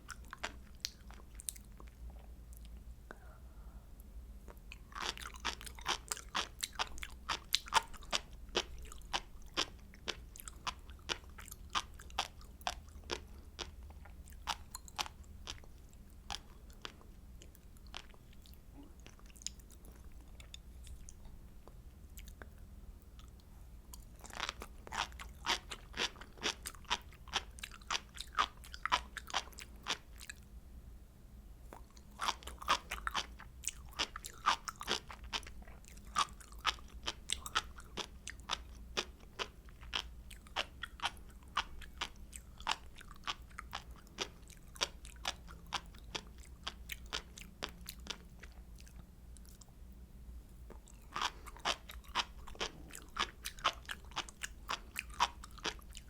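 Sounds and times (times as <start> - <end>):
person chewing crisp food: 0.0 - 2.8, 4.4 - 30.4, 31.7 - 49.8, 50.6 - 56.0.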